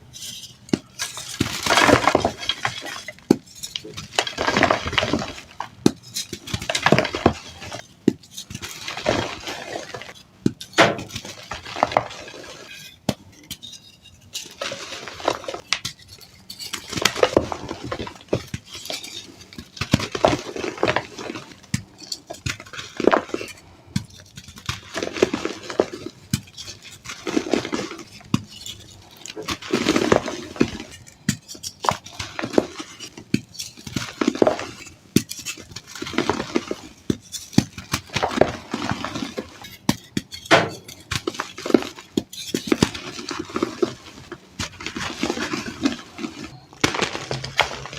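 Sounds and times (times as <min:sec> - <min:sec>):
chalk crunching and crackling: 0:00.1 - 0:13.0, 0:13.6 - 0:23.6.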